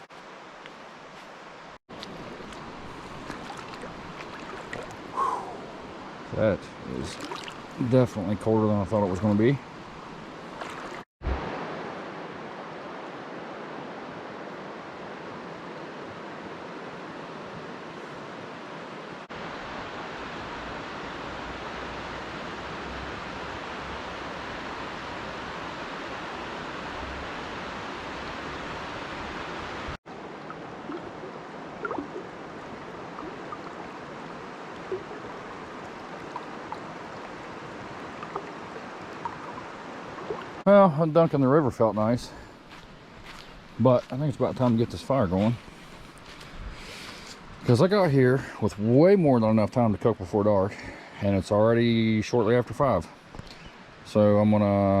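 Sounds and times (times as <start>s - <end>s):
river flowing: 0.0s - 43.8s.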